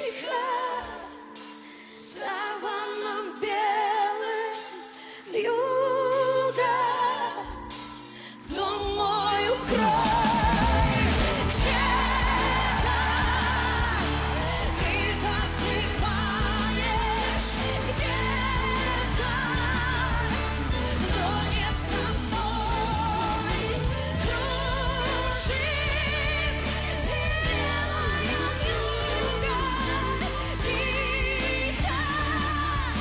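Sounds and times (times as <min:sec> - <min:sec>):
soft backing music: 0:00.0 - 0:33.0
woman singing pop song: 0:00.0 - 0:33.0
bass: 0:08.7 - 0:33.0.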